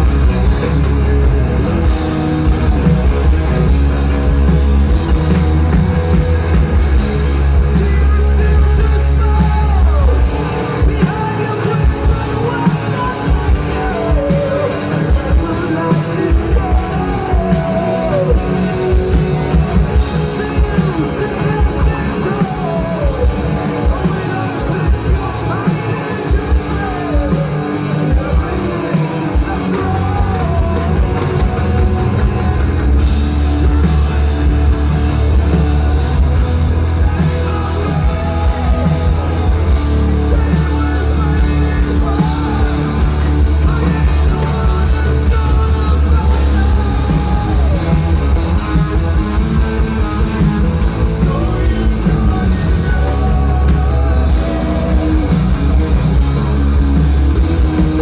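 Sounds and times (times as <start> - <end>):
distorted electric guitars: 0.0 - 58.0
drums: 0.0 - 58.0
heavy bass: 0.0 - 58.0
person singing: 7.2 - 32.7, 36.2 - 56.5.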